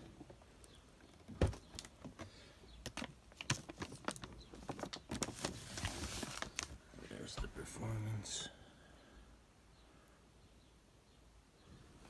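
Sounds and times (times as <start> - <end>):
boxes clicking and rustling: 1.1 - 6.8.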